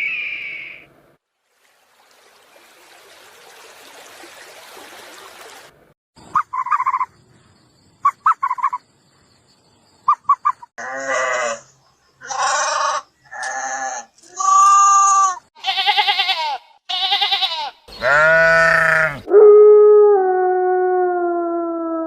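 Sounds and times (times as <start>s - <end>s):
short high calls: 0.0s - 0.9s
long bleats: 10.8s - 19.3s.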